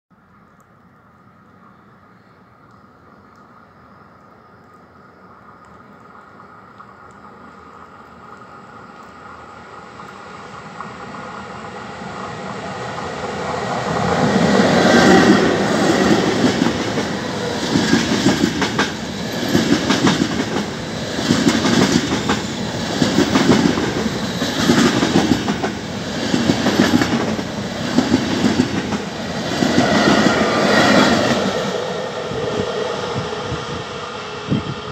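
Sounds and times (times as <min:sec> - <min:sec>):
train passing at speed: 0:05.3 - 0:34.9
wheels clacking over rail joints: 0:13.0 - 0:31.2.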